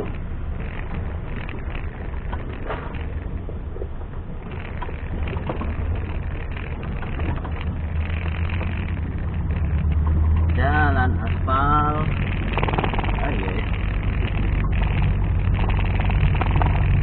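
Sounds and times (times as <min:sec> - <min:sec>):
clicks and knocks: 0:00.0 - 0:10.6
vehicle engine running: 0:00.0 - 0:17.0.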